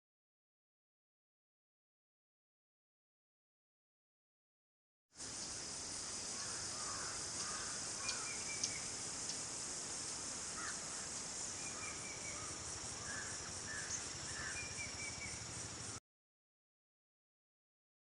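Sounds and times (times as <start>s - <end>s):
high-pitched insect chorus: 5.2s - 16.0s.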